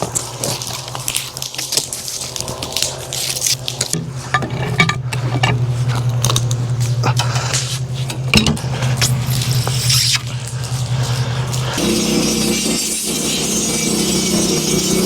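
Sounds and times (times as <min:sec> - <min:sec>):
metallic clanks and knocks: 0:04.3 - 0:05.6
sawmill engine hum: 0:05.1 - 0:15.0.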